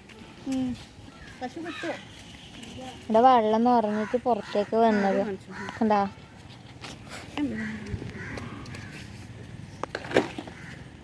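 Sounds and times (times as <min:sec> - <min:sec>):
crow cawing: 0:01.2 - 0:02.0, 0:03.8 - 0:06.1, 0:07.5 - 0:09.0, 0:10.5 - 0:10.9.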